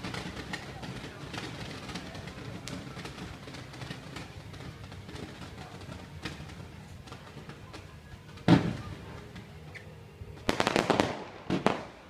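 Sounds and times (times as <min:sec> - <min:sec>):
rapid rattle of sharp cracks: 0:00.0 - 0:07.9
fireworks crackling: 0:00.0 - 0:12.0
loud firework bang: 0:08.4 - 0:09.1, 0:10.5 - 0:12.0.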